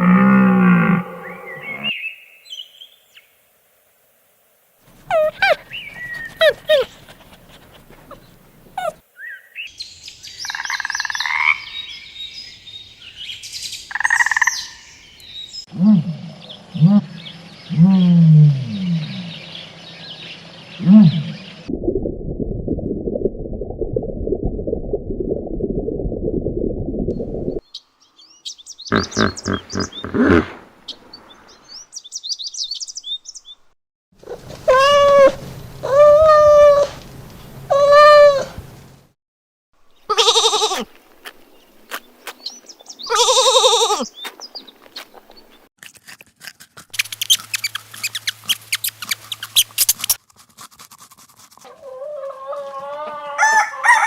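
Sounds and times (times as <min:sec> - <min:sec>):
animal bleats: 0:40.1 - 0:40.9, 0:43.1 - 0:44.1.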